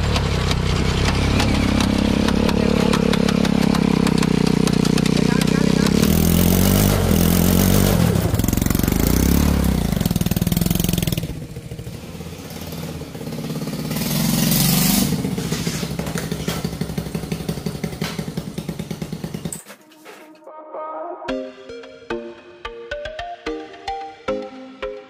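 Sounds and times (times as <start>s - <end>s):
motorcycle engine running: 0.0s - 19.7s.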